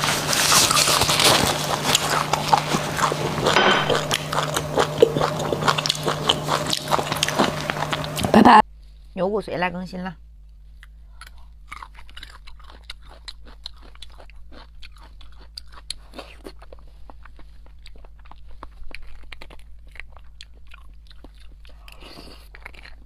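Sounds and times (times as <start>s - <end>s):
wet chewing: 0.0s - 8.6s, 10.8s - 23.0s
small irregular mouth clicks: 10.8s - 23.0s.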